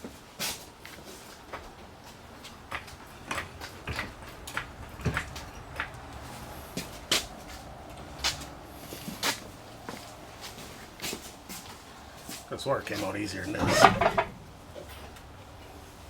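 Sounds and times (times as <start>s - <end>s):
metal clanks and knocks: 2.7s - 6.4s, 13.5s - 15.8s.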